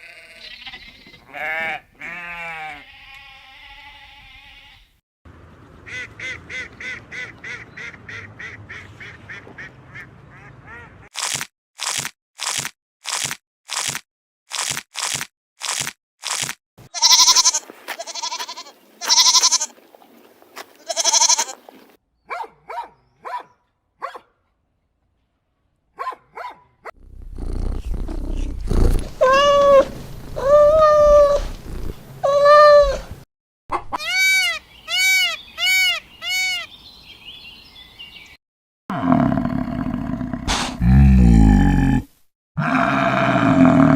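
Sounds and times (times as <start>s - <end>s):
animal bleating: 0.0s - 4.9s, 16.9s - 19.7s, 20.6s - 21.6s, 27.3s - 33.0s, 42.6s - 43.9s.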